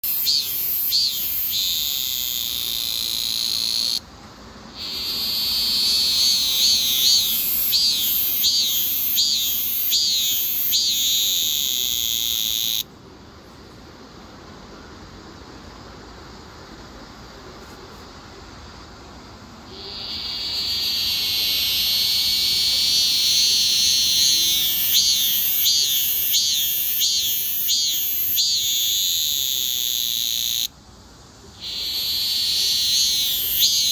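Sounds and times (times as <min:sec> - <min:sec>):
cicada buzzing: 0:00.0 - 0:04.0, 0:04.7 - 0:12.9, 0:19.7 - 0:30.7, 0:31.5 - 0:33.9.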